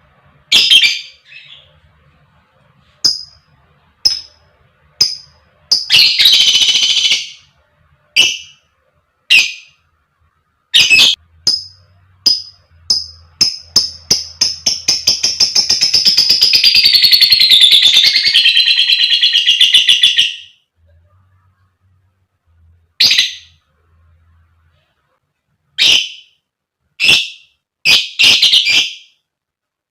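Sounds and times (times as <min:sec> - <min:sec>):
lovebird chirping and trilling: 0:00.5 - 0:01.8, 0:03.0 - 0:04.4, 0:05.0 - 0:07.5, 0:08.2 - 0:08.6, 0:09.3 - 0:09.8, 0:10.7 - 0:20.6, 0:23.0 - 0:23.6, 0:25.8 - 0:26.4, 0:27.0 - 0:29.2.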